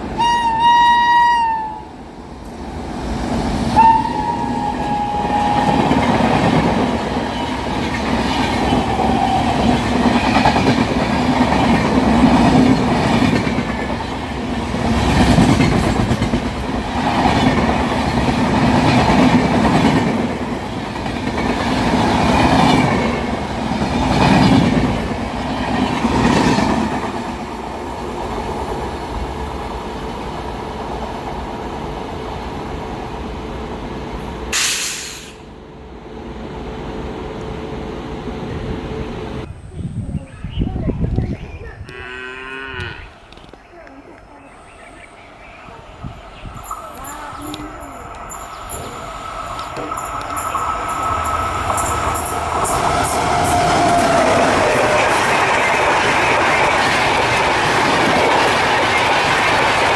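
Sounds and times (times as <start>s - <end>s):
locomotive horn: 0.2s - 1.9s, 3.8s - 6.1s
train wheels clattering on rail joints: 2.4s - 27.5s, 46.6s - 59.9s.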